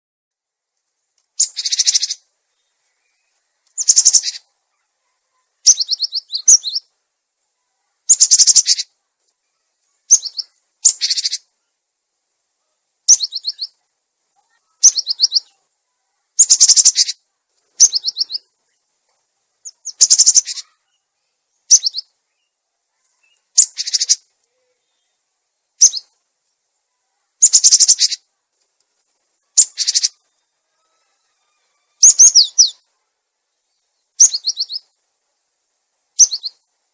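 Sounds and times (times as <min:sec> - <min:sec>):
bird chirping in bursts: 0:01.4 - 0:04.5, 0:05.3 - 0:06.9, 0:08.1 - 0:08.9, 0:10.1 - 0:11.5, 0:13.0 - 0:13.8, 0:14.5 - 0:15.6, 0:16.4 - 0:18.6, 0:19.6 - 0:21.0, 0:21.6 - 0:26.2, 0:27.4 - 0:28.3, 0:29.5 - 0:30.4, 0:31.9 - 0:32.9, 0:33.7 - 0:35.0, 0:36.2 - 0:36.7.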